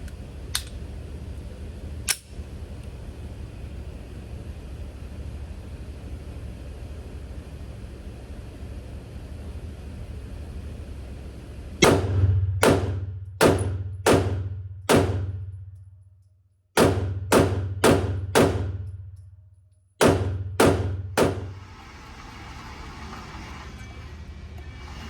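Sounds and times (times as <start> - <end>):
pistol shots with reverberant tail: 11.8 - 15.5, 16.8 - 18.9, 20.0 - 21.5.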